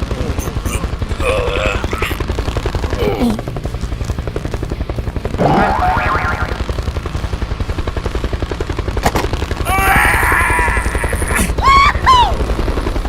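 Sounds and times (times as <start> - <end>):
cartoon engine sound effect: 5.4 - 6.6.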